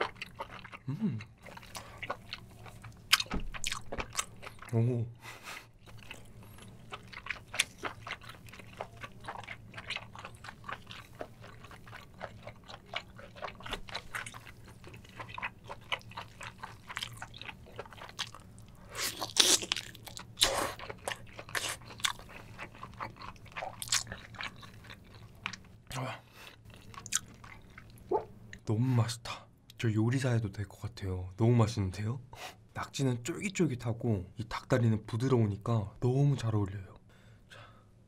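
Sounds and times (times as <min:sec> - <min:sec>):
wet sticky chewing: 0:00.0 - 0:04.8, 0:05.5 - 0:25.7, 0:26.6 - 0:28.6.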